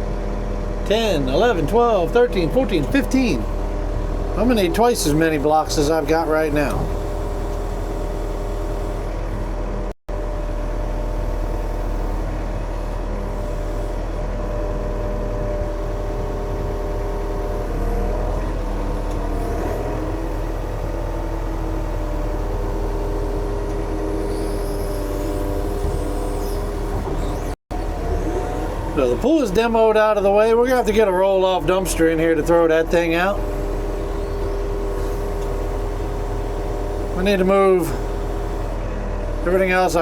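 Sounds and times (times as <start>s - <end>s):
diesel engine running steadily: 0.0s - 40.0s.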